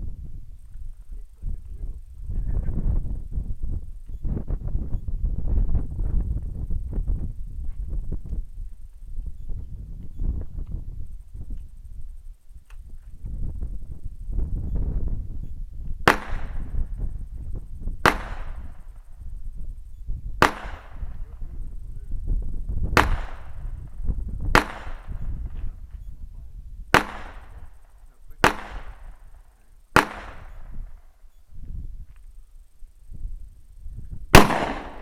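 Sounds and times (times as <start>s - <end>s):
shotgun shots with echo: 16.0s - 16.8s, 18.0s - 18.8s, 20.4s - 21.4s, 23.0s - 23.7s, 24.5s - 25.2s, 26.9s - 27.8s, 28.4s - 29.2s, 30.0s - 30.6s, 34.3s - 35.0s.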